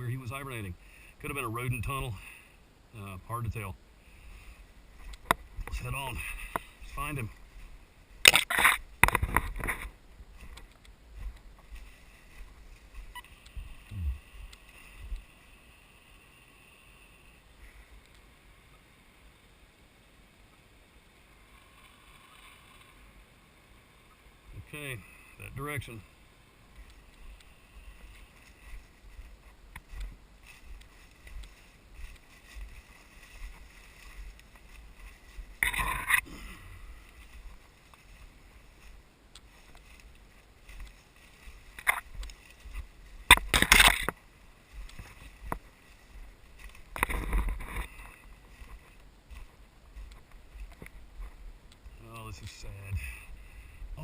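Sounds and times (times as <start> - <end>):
brush rustling and crunching: 4.0 - 16.3, 25.6 - 53.6
footsteps through undergrowth: 4.1 - 15.8, 25.8 - 54.0
branch snapping: 8.2 - 9.8, 43.3 - 44.2.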